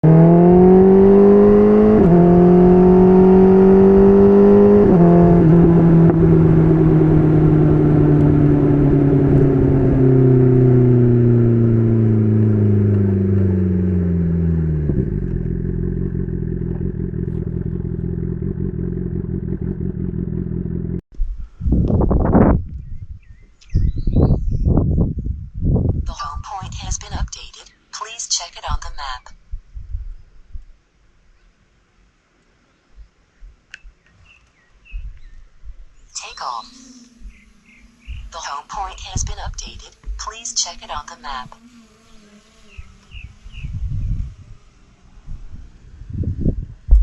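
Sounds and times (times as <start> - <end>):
motorcycle engine revving: 0.0 - 21.0, 36.8 - 47.0.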